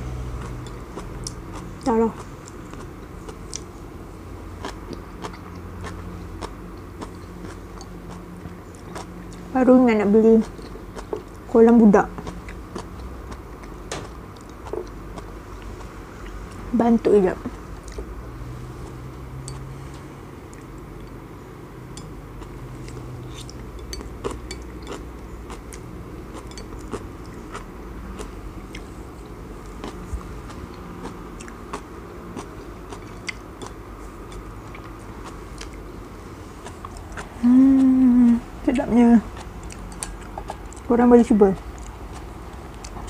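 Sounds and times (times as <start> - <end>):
chewing and biting food: 0.0 - 16.7, 22.0 - 43.0
person humming: 37.4 - 38.5.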